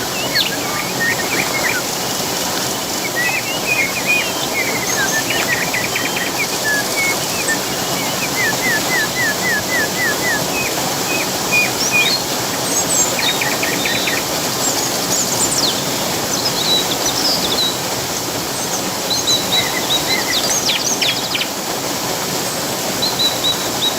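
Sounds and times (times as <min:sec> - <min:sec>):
birds chirping and singing: 0:00.0 - 0:02.1, 0:02.7 - 0:17.7
flowing water: 0:00.0 - 0:23.9.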